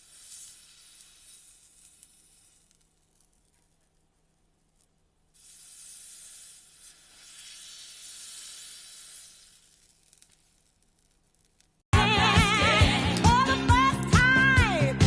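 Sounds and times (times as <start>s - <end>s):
slime fizzy crackling hiss: 0.0s - 11.8s.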